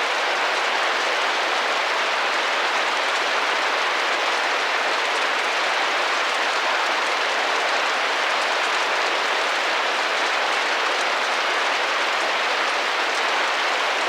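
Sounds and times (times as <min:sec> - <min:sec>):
rain on a window pane: 0:00.0 - 0:14.0.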